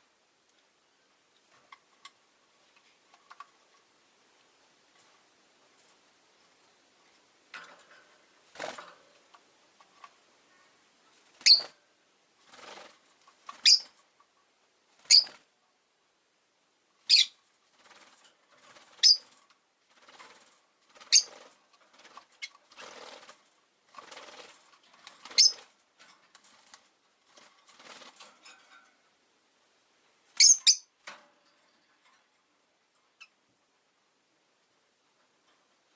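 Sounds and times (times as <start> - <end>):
lovebird shrill calls: 11.4 - 11.7, 13.6 - 13.9, 15.1 - 15.3, 17.1 - 17.4, 21.1 - 21.4, 25.4 - 25.6, 30.4 - 30.9.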